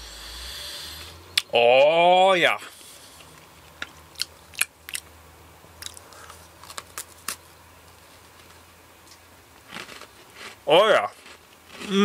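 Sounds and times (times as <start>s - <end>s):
quiet chewing: 2.8s - 5.1s, 5.8s - 7.4s
cookie crunching: 3.2s - 5.1s, 5.8s - 7.4s, 9.0s - 11.9s.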